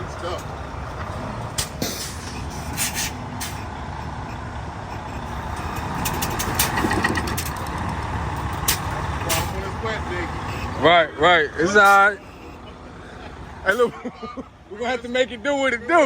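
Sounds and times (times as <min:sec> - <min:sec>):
heavy truck engine rumbling: 0:00.0 - 0:16.0
short hisses: 0:01.8 - 0:03.6.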